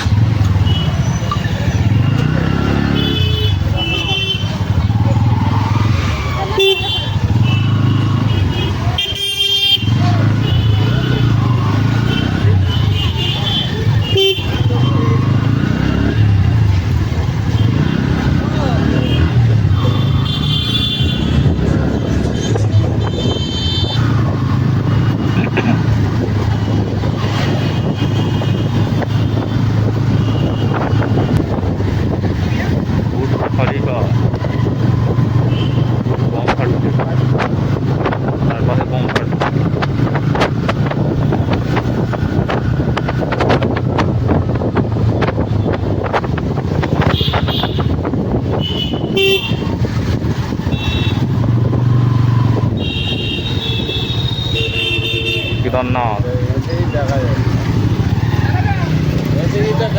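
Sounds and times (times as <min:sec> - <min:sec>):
motorcycle engine hum: 0:00.0 - 0:59.9
street traffic: 0:00.0 - 0:59.9
horn honks: 0:01.8 - 0:04.8, 0:06.2 - 0:16.1, 0:17.4 - 0:21.9, 0:22.5 - 0:26.1, 0:26.7 - 0:31.6, 0:35.4 - 0:36.0, 0:46.8 - 0:51.6, 0:52.4 - 0:56.2
wind rushing over microphone: 0:21.0 - 0:54.8.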